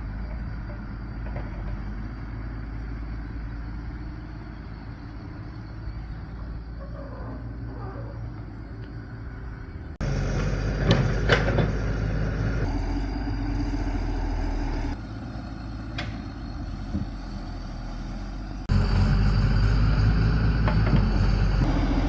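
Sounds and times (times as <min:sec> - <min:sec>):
engine running: 0:08.2 - 0:22.0.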